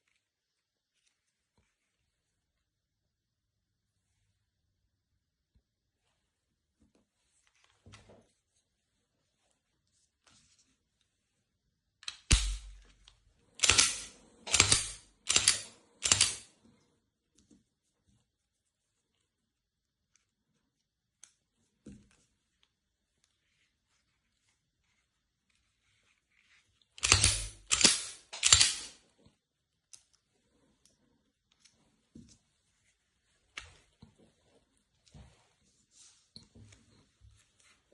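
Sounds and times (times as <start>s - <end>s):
pistol metallic clacks: 12.1s - 12.8s, 13.6s - 16.4s, 27.0s - 29.0s
sharp snap with dull thud: 12.3s - 12.8s
hard parts clicking: 13.6s - 16.5s, 27.0s - 29.0s.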